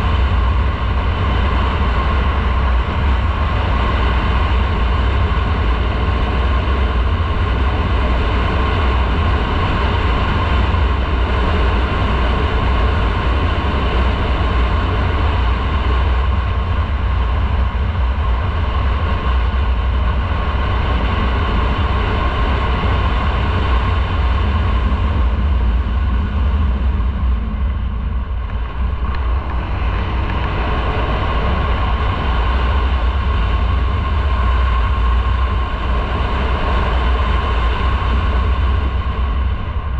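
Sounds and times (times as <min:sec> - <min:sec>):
motorcycle running: 0:00.0 - 0:39.9
wind rumble on microphone: 0:00.0 - 0:39.9.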